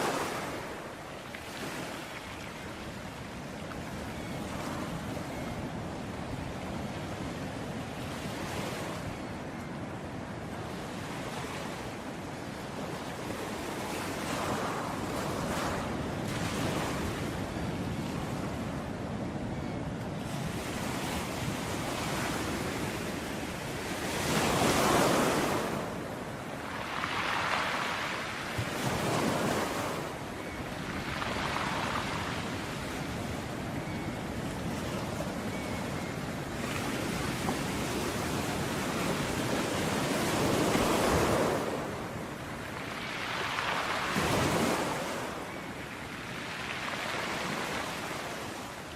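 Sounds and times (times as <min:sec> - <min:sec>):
ocean waves crashing on beach: 0:00.0 - 0:09.6, 0:20.2 - 0:48.9.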